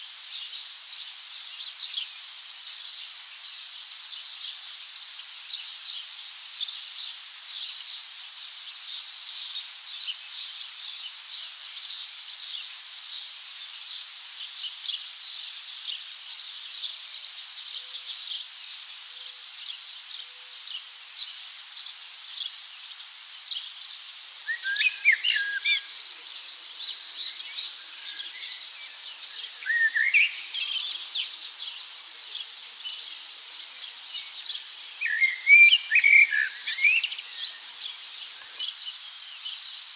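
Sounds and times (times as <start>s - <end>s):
birds chirping: 24.5s - 31.4s.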